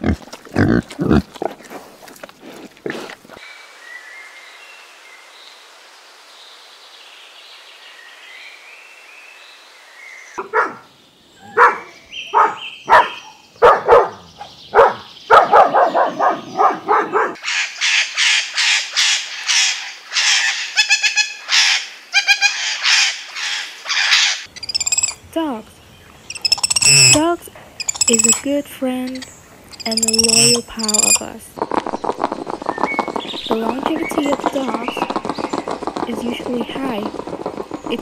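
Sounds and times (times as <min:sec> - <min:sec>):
dog barking: 0:10.4 - 0:10.9, 0:11.5 - 0:17.4
faint bird calls: 0:15.9 - 0:25.2, 0:26.2 - 0:28.5, 0:29.1 - 0:31.2
lorikeets screeching: 0:17.4 - 0:25.2, 0:26.2 - 0:31.3.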